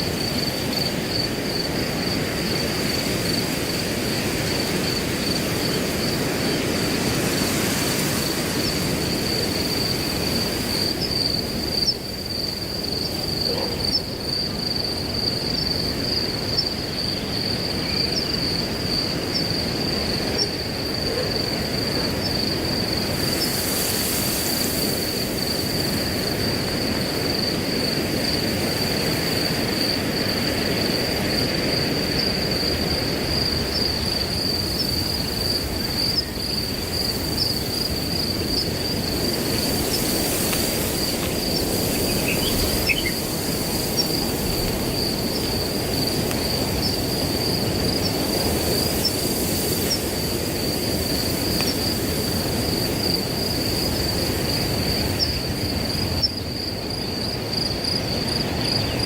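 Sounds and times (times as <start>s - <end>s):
crickets trilling: 0.0s - 59.0s
wind through grass: 0.0s - 59.0s.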